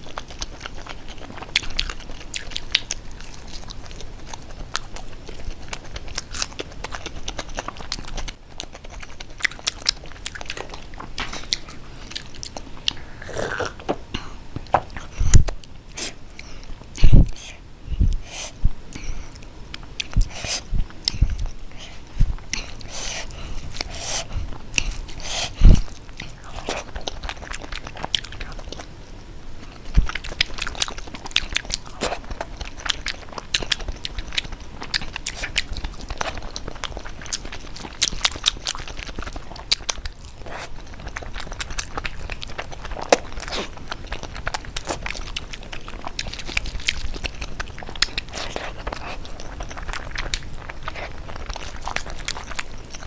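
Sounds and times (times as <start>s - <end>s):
crunchy chewing of food: 0.0s - 53.0s.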